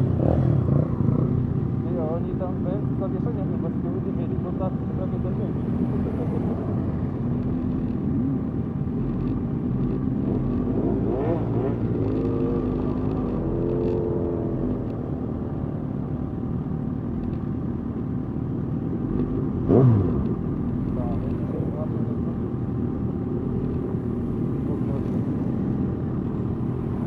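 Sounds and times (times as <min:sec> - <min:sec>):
motorcycle engine revving: 0:00.0 - 0:02.2, 0:05.5 - 0:15.7, 0:19.0 - 0:27.0
motorcycle engines rumbling: 0:00.0 - 0:27.0.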